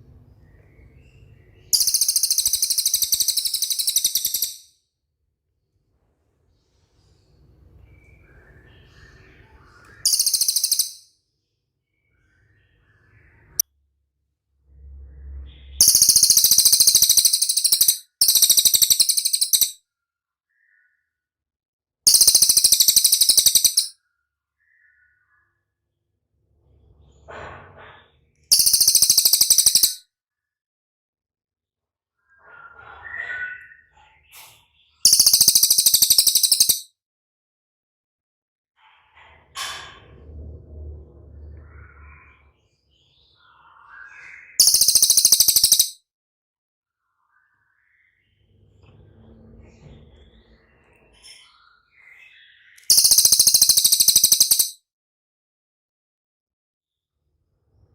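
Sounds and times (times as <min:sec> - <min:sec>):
bird singing high-pitched trills: 0:01.7 - 0:04.7, 0:09.9 - 0:11.1, 0:15.8 - 0:19.8, 0:22.1 - 0:23.9, 0:28.5 - 0:30.0, 0:35.0 - 0:36.9, 0:44.6 - 0:46.0, 0:52.5 - 0:54.8
faint low rumble: 0:14.6 - 0:15.8, 0:40.1 - 0:42.6.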